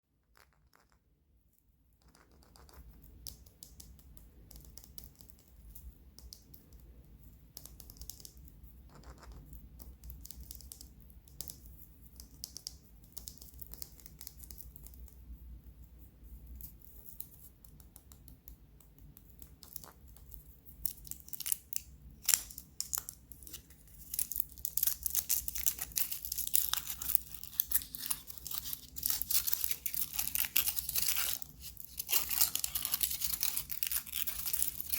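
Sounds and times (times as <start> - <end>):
wrapper crinkling and tearing: 21.0 - 34.9.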